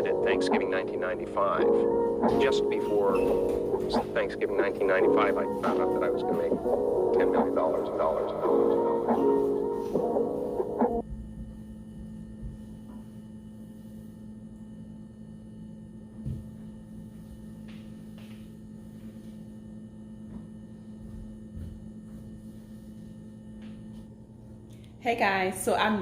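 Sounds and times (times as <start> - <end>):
music: 0.0 - 11.4
electrical hum: 0.0 - 26.0.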